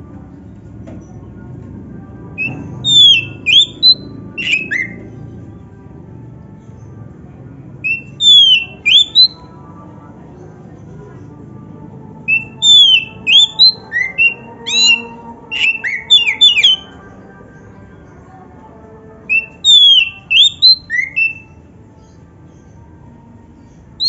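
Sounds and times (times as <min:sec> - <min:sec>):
bird singing whistled notes: 0:02.4 - 0:05.1, 0:07.8 - 0:09.5, 0:12.3 - 0:17.0, 0:19.3 - 0:22.2.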